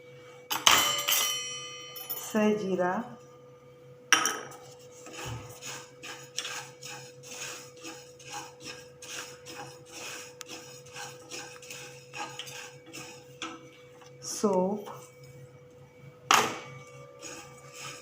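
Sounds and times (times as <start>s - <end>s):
faint steady hum: 0.0s - 18.0s
spatula scraping spices in pan: 4.5s - 13.8s, 16.8s - 18.0s.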